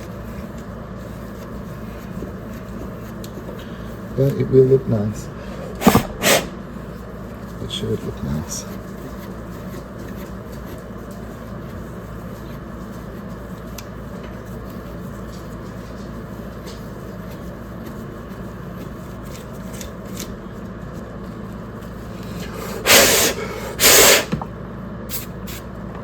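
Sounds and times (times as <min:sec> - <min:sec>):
low steady hum: 0:00.0 - 0:22.8
cleaner spraying: 0:05.8 - 0:06.6, 0:22.7 - 0:24.4.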